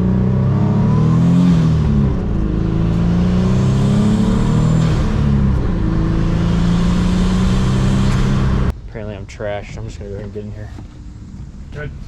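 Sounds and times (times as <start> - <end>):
car engine accelerating: 0.0 - 8.7.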